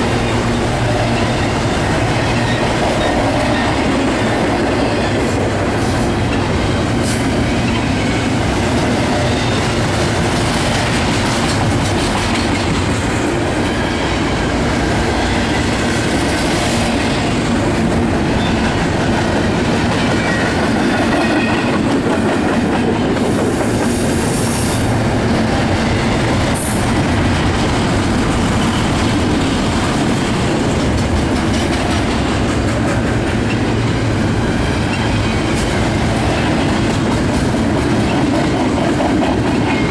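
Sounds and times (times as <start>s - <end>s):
freight train cars rumbling: 0.0s - 39.9s.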